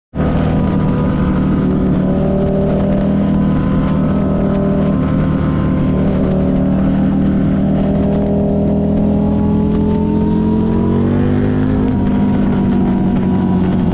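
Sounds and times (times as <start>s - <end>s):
motorcycle engine running loudly: 0.1s - 13.9s.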